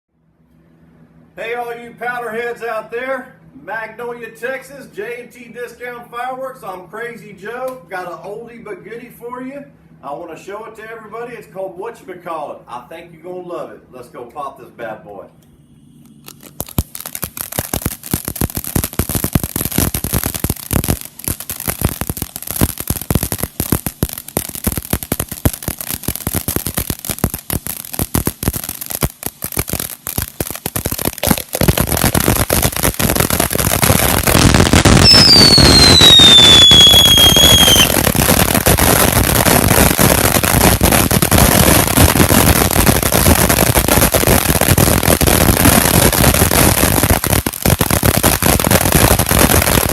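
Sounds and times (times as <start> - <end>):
firework fountain crackling: 16.2 - 49.9
falling whistle: 35.0 - 38.0.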